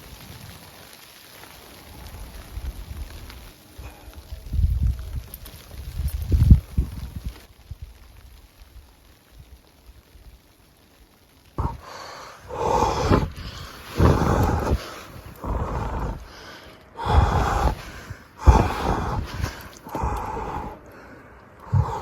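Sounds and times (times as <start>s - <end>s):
footsteps crunching through snow: 12.5s - 16.4s.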